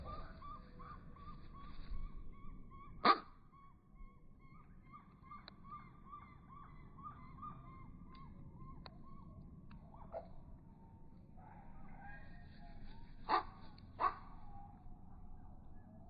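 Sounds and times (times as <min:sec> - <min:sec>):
bird calling repeated notes: 0:00.0 - 0:10.3.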